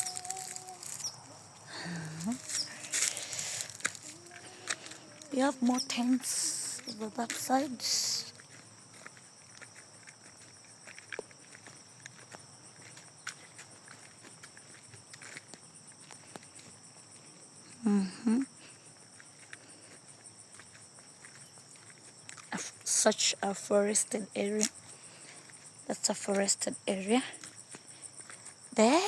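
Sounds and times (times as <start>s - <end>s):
insects chirring: 0.0s - 29.0s
person's voice: 1.7s - 2.9s, 5.3s - 8.4s, 25.9s - 27.3s, 28.8s - 29.0s.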